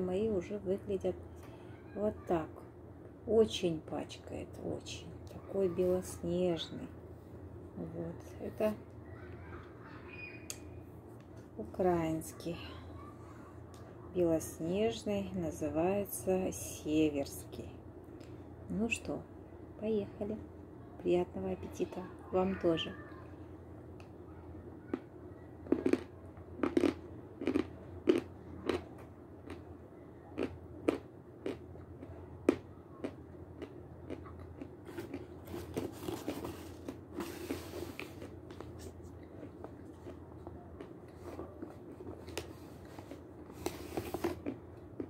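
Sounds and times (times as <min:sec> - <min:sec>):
chewing crunches and clicks: 0:24.8 - 0:29.7, 0:30.4 - 0:43.2, 0:44.2 - 0:45.0.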